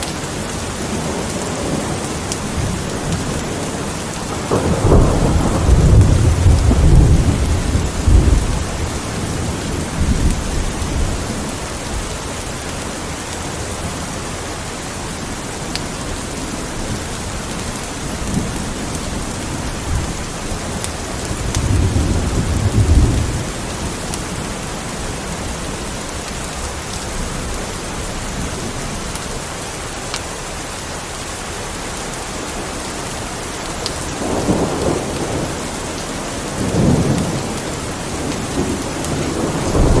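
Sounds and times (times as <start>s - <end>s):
rain hissing: 0.0s - 40.0s
deep thunder rumbling: 0.8s - 12.2s, 16.5s - 29.2s, 34.0s - 40.0s.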